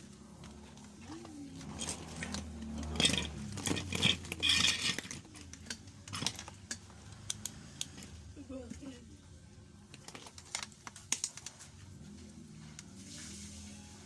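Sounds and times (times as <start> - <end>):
small hard objects clinking: 1.6 - 7.5.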